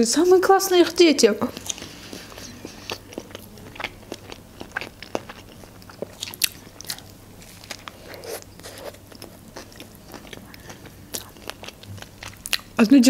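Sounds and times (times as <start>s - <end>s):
biting and chewing a hot dog: 1.5s - 12.8s.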